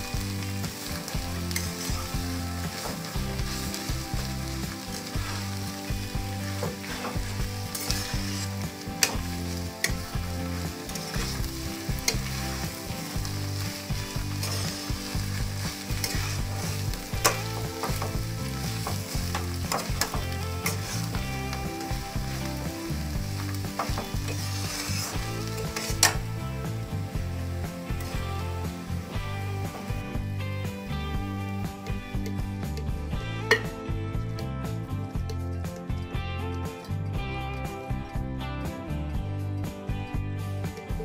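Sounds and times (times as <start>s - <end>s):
food sizzling in a wok: 0.0s - 41.0s
metal spatula scraping pan: 0.4s - 26.4s.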